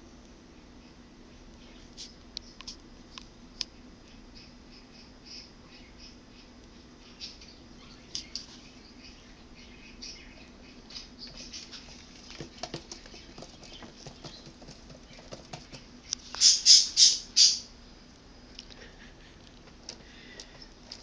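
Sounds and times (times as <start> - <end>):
baby birds scrabbling and fluttering: 10.0 - 17.7, 19.6 - 21.0.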